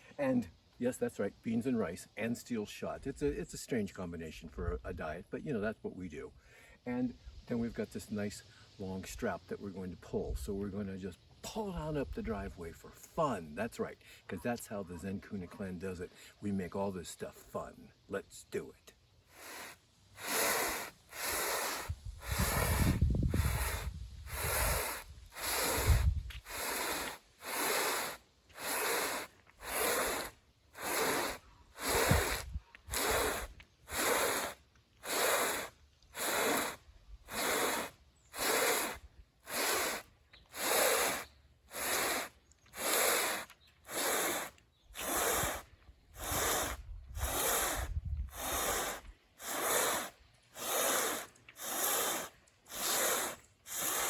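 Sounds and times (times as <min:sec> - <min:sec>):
person breathing heavily: 0:19.3 - 0:54.0.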